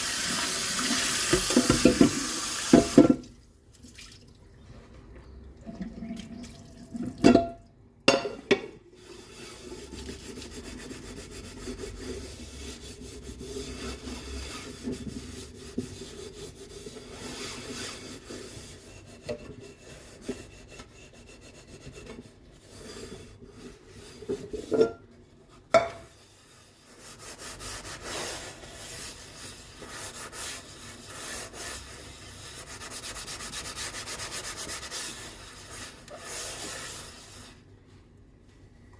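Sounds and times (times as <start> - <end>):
dishes being scrubbed: 0.0 - 3.3, 8.1 - 37.6
dishes clattering together: 7.2 - 8.7.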